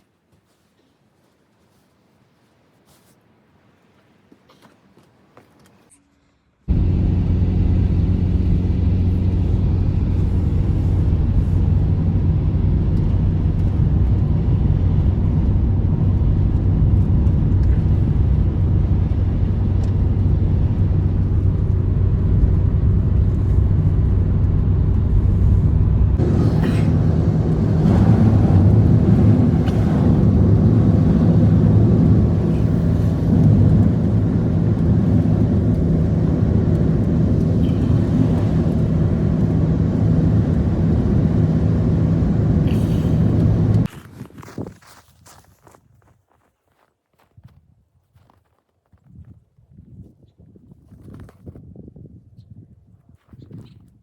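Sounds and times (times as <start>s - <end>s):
engine humming: 6.7s - 43.9s.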